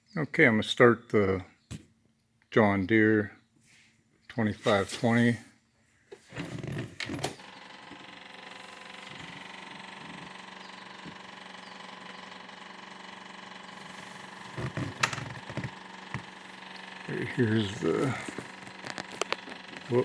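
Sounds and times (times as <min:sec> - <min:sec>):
diesel engine cranking and idling: 0:06.2 - 0:20.0.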